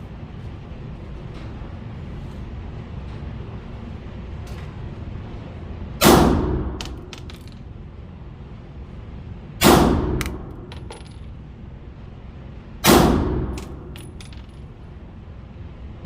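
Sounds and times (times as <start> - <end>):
pistol shots: 6.0 - 6.8, 9.6 - 10.6, 12.8 - 13.9.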